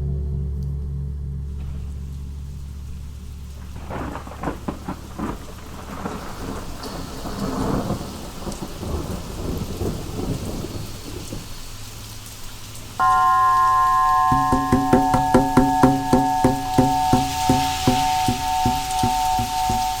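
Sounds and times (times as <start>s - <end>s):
low steady hum: 0.0s - 5.3s, 13.0s - 20.0s
thunder rumbling: 1.6s - 11.6s
rain falling: 1.6s - 20.0s.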